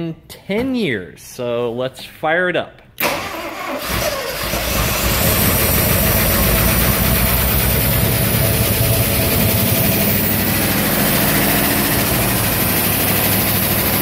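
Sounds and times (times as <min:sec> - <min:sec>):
car engine running: 0:04.9 - 0:14.0.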